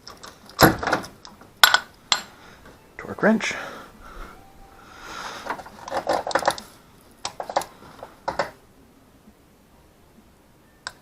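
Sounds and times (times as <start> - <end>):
metallic clicks and clatter: 0.0 - 2.3, 5.4 - 8.6.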